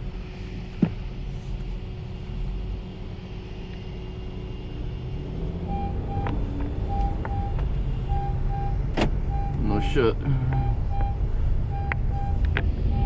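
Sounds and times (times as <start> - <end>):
car idling: 0.0 - 13.0
car warning beep: 5.7 - 13.0.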